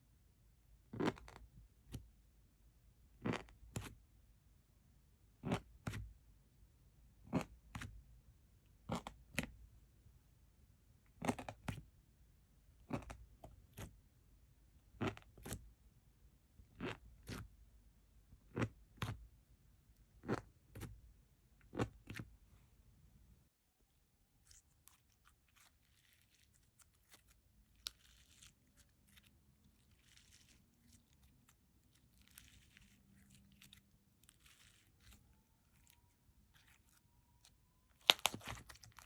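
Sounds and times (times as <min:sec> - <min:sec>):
slime popping squelches: 0:26.6 - 0:39.0.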